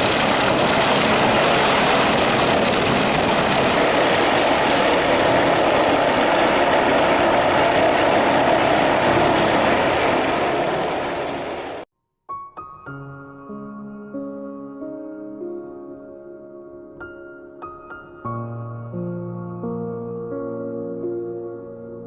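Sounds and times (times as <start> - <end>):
helicopter rotor and engine: 0.0 - 11.8.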